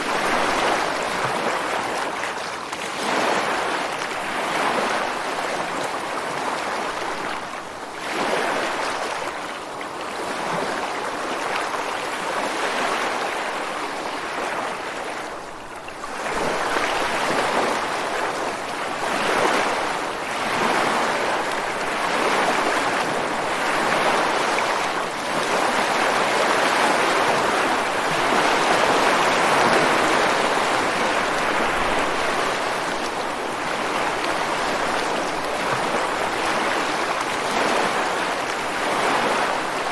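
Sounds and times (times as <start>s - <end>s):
ocean waves breaking on rocks: 16.0s - 39.9s.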